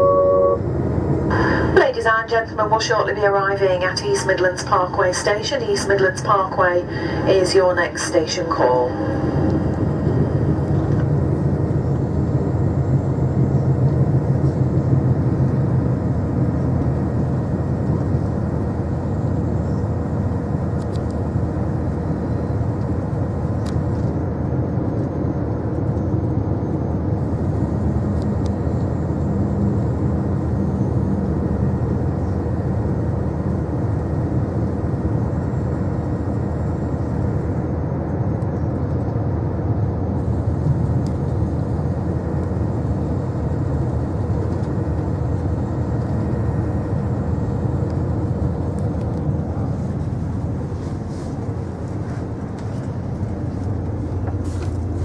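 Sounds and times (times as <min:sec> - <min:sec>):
diesel engine drone: 0:00.0 - 0:55.0
wheel and track noise: 0:47.9 - 0:55.0.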